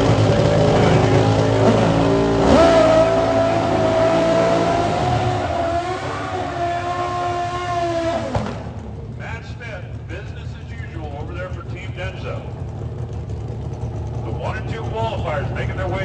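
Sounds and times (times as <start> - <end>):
motorcycle engines revving high: 0.0 - 10.4, 11.0 - 16.0.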